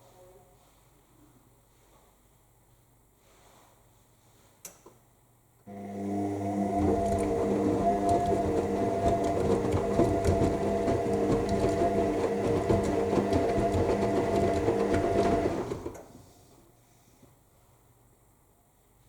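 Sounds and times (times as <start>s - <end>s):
washing machine motor hum: 5.7s - 16.3s
wet laundry tumbling in drum: 6.4s - 16.0s.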